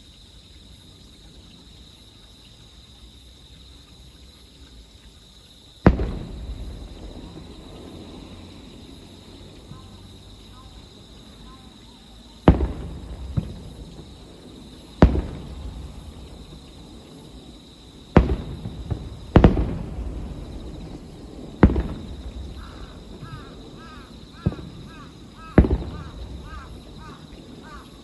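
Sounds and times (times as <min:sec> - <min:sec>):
firework booms: 0:05.8 - 0:11.5, 0:12.4 - 0:28.0
small firework pops: 0:05.8 - 0:28.0.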